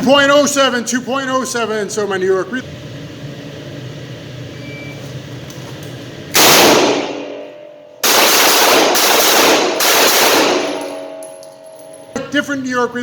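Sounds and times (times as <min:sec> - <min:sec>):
handgun shots: 0:06.4 - 0:07.4, 0:08.0 - 0:11.2.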